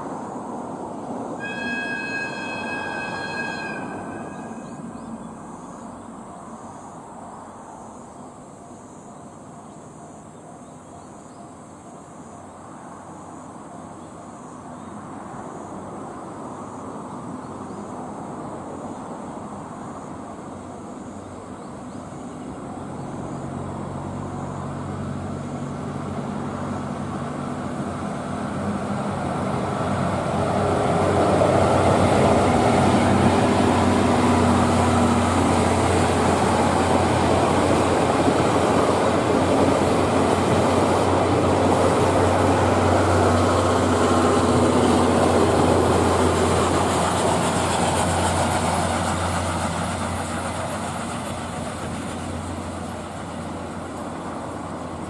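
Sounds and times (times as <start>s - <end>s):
passenger train passing: 0.0s - 55.0s
wheels rumbling on rail: 0.0s - 55.0s.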